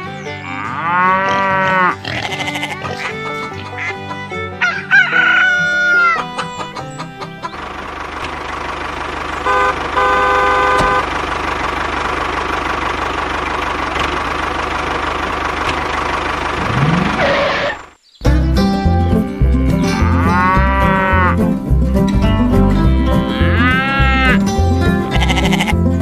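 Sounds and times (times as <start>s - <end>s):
vehicle engine running: 5.8s - 26.0s
vehicle horn honking: 9.4s - 11.2s.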